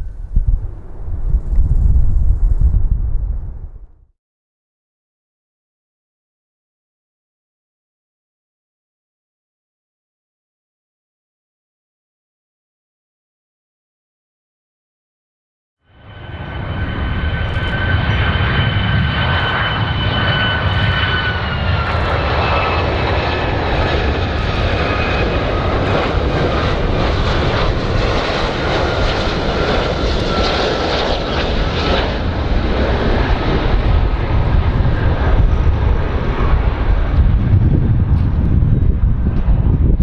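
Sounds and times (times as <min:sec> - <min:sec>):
aircraft engines roaring: 0:00.0 - 0:03.9, 0:15.9 - 0:40.0.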